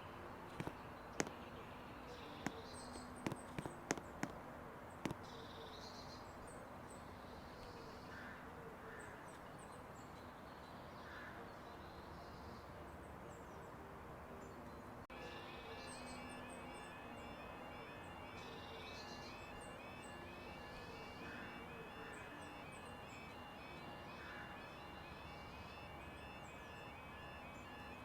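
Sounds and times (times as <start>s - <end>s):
outdoor background hiss: 0.0s - 28.0s
birds calling and chirping: 0.4s - 4.4s, 15.1s - 28.0s
sharp clicks: 0.5s - 1.4s, 3.3s - 4.4s.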